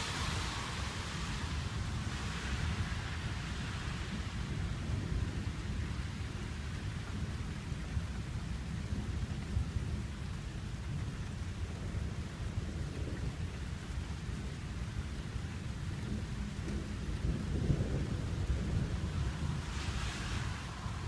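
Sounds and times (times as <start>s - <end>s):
rain falling: 0.0s - 21.0s
thunder rumbling: 0.0s - 21.0s.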